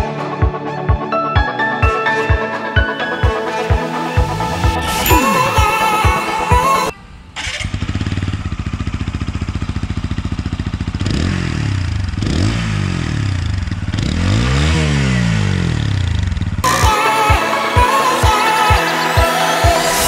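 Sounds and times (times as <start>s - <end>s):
motorcycle engine accelerating: 7.4s - 16.7s.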